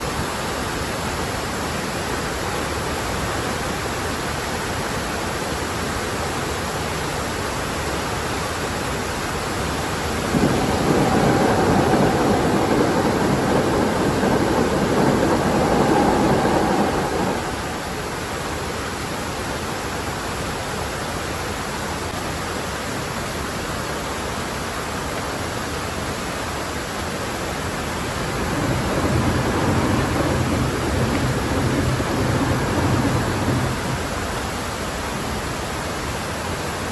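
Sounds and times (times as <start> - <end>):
running water rushing: 9.2 - 18.8, 26.0 - 35.7
electric train passing: 9.4 - 18.6, 27.0 - 35.4.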